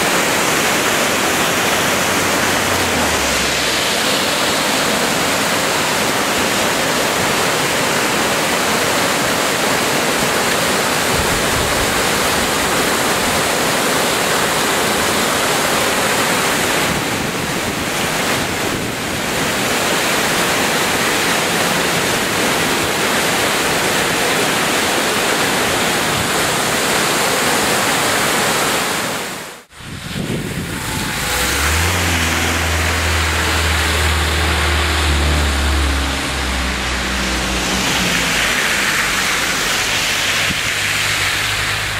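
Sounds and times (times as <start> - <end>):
car engine humming: 0.0 - 8.8, 29.7 - 41.9
heavy rain hissing: 0.0 - 17.8, 18.4 - 41.9.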